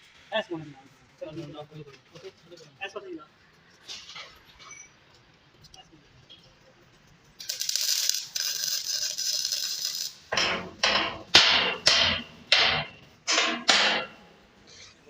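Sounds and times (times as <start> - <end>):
hissing metal grinding: 7.4 - 15.0
sharp metal strikes: 10.3 - 14.3.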